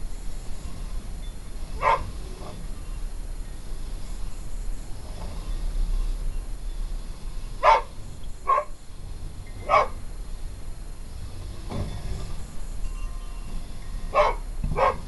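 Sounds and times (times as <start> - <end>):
low steady rumble: 0.0 - 15.0
dog barking: 1.8 - 2.1, 7.6 - 8.7, 9.6 - 10.0, 14.1 - 15.0.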